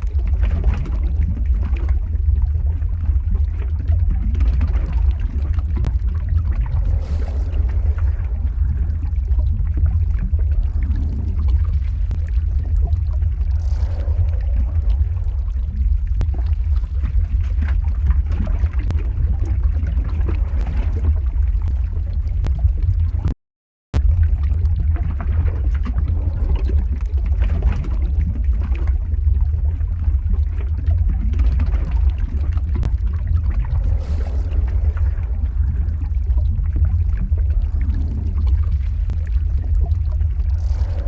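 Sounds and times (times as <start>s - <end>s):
deep rumble of lava flow: 0.0s - 23.4s, 24.0s - 41.0s.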